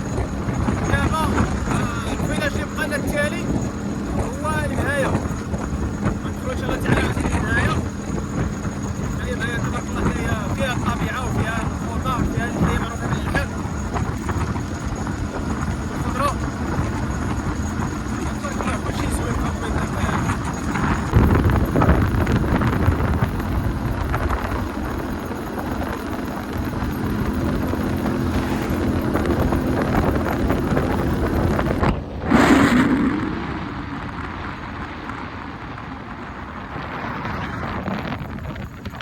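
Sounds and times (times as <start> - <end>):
vehicle road noise: 0.0 - 39.0
wind buffeting microphone: 0.0 - 39.0
loud rush of noise: 26.1 - 38.2.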